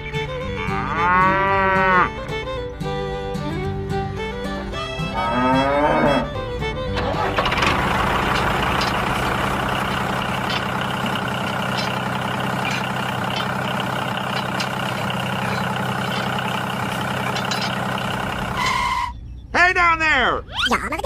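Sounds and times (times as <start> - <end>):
engine idling: 6.3 - 19.5.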